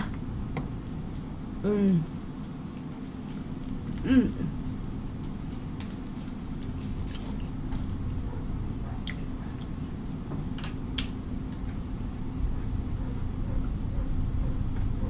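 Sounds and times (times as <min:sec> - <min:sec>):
low background rumble: 0:00.0 - 0:15.0
chewing mouth clicks and smacks: 0:00.8 - 0:01.3, 0:02.4 - 0:04.0, 0:04.6 - 0:08.0, 0:09.0 - 0:09.8, 0:10.6 - 0:12.1.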